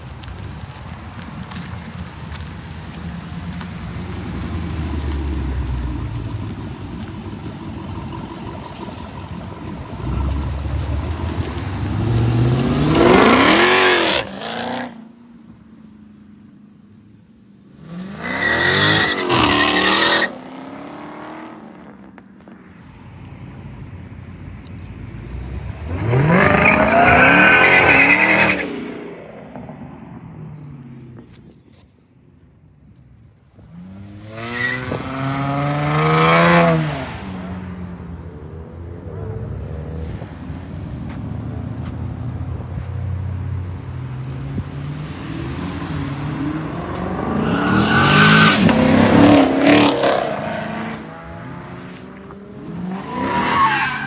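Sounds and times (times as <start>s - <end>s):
car engine idling: 1.4s - 14.2s
car engine revving: 1.4s - 15.1s, 25.0s - 29.0s, 33.6s - 41.9s, 42.5s - 54.0s.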